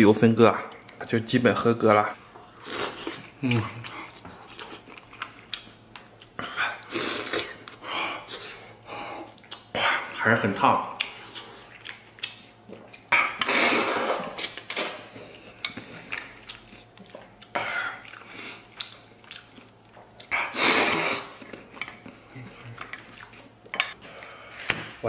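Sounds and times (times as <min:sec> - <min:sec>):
noisy slurping and sucking: 0:13.2 - 0:15.0, 0:20.4 - 0:21.4.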